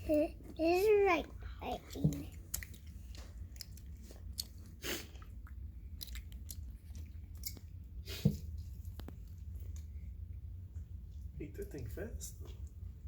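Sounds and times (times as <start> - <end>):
low steady hum: 0.0 - 13.0
lizard chewing with wet crunches: 1.6 - 10.0.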